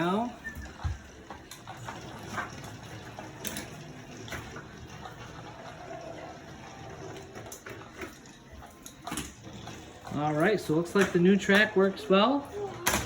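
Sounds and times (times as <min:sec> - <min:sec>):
toy train motors whirring: 0:00.7 - 0:13.0.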